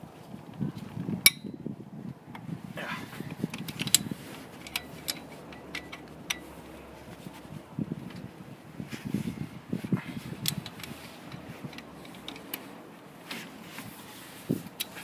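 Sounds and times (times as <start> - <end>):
metal tools clinking: 3.5 - 6.9.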